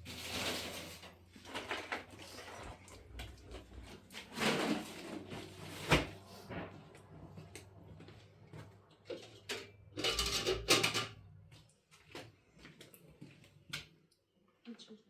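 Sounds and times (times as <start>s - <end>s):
hard objects knocking and clattering: 9.2s - 11.3s.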